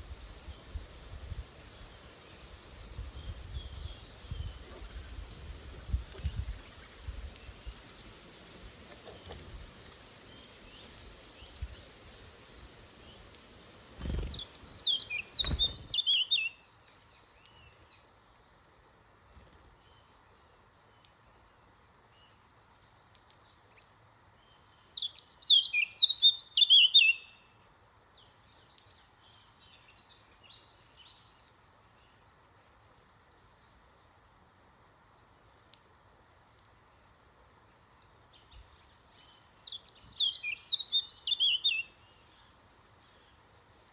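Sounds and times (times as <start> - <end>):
faint small bird chirps: 0.0 - 34.7, 37.7 - 43.9
chaffinch singing: 3.2 - 18.0, 22.2 - 32.2, 37.9 - 43.5.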